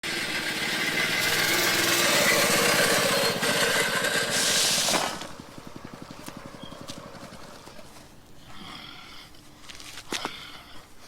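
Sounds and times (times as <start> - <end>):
small motor pulsing: 0.0 - 7.9
brief hiss: 4.3 - 5.3.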